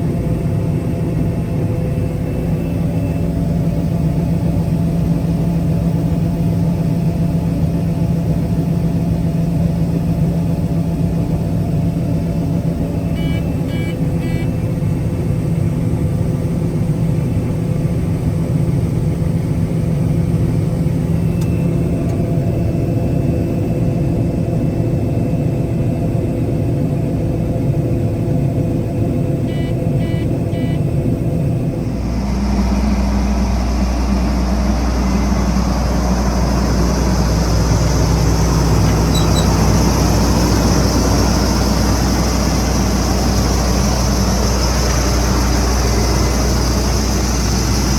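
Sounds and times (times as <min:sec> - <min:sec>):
combine harvester running: 0:00.0 - 0:23.7, 0:29.0 - 0:47.9
high warning beeps: 0:13.0 - 0:14.5, 0:29.5 - 0:30.9, 0:39.0 - 0:39.8.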